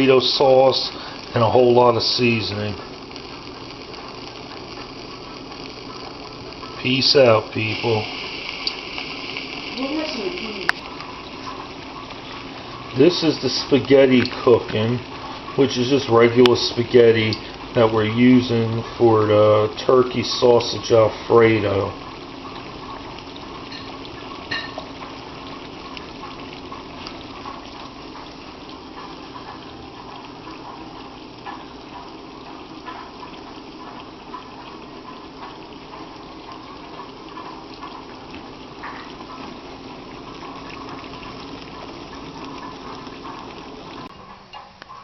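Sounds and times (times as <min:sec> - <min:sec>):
water boiling and bubbling: 0:00.0 - 0:45.0.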